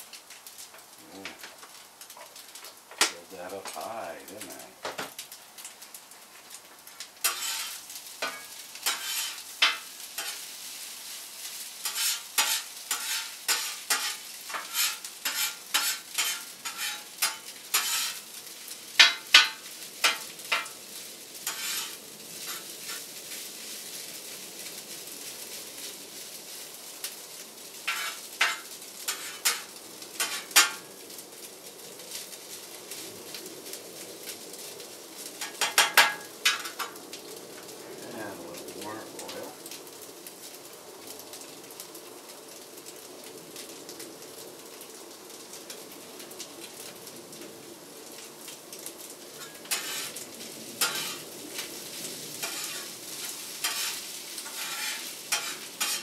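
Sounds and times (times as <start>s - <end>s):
rice and onions sizzling: 0.0s - 56.0s
spatula scraping pan: 7.2s - 10.5s, 11.8s - 18.2s, 19.0s - 20.8s, 21.4s - 23.1s, 27.9s - 30.9s, 35.4s - 37.0s, 49.4s - 50.2s, 50.8s - 51.2s, 52.4s - 56.0s.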